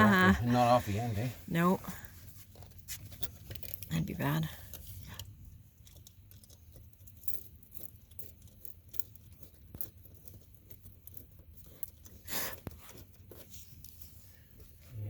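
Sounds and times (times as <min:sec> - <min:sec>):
scratching and small clicks: 0:02.5 - 0:14.1.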